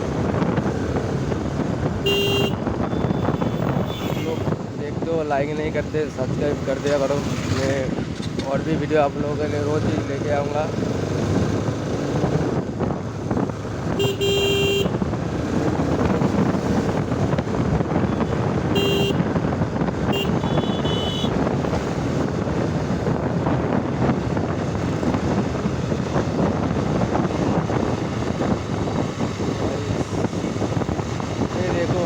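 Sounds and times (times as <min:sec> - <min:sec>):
vehicle horn honking: 0:02.0 - 0:04.5, 0:13.9 - 0:15.0, 0:18.1 - 0:19.2, 0:20.1 - 0:21.4
wind rushing: 0:21.3 - 0:32.0.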